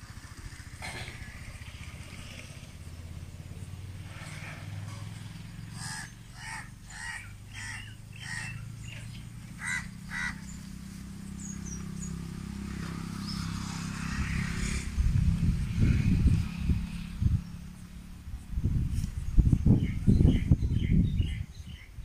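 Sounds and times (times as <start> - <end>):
bird calling: 4.9 - 12.2.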